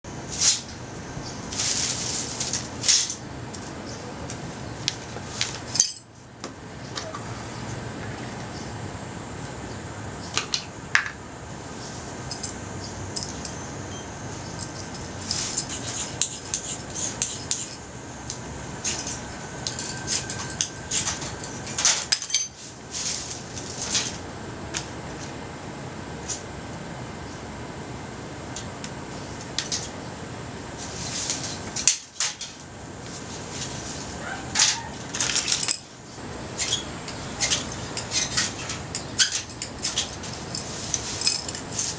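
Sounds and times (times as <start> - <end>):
steady background hiss: 0.1 - 41.9
metallic clinks and scrapes: 5.4 - 6.1, 12.2 - 17.9, 18.8 - 24.2, 33.5 - 35.9, 36.6 - 41.9.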